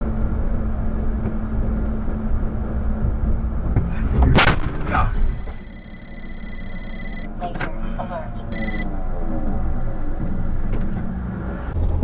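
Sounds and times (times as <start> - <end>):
low rumble: 0.0 - 12.0
car collision crash: 4.2 - 5.1
short bang: 4.3 - 5.1.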